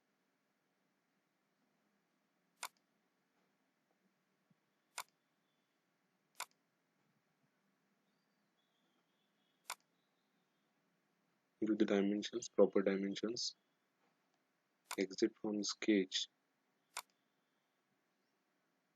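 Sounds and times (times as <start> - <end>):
computer mouse clicks: 2.6 - 2.8, 4.9 - 5.2, 6.4 - 6.6, 9.6 - 9.9, 14.9 - 15.2, 16.9 - 17.2.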